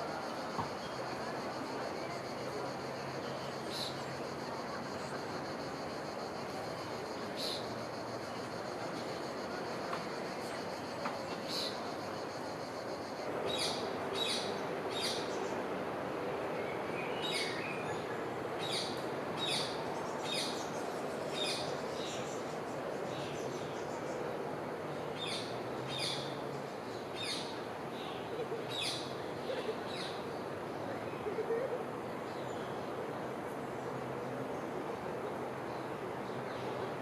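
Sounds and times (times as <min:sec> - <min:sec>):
background noise: 0:00.0 - 0:37.0.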